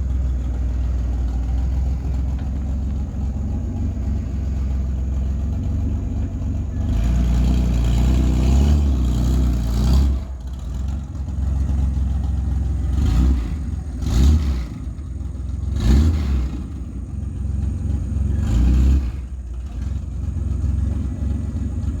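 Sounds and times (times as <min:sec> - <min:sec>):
truck engine idling and revving: 0:00.0 - 0:22.0.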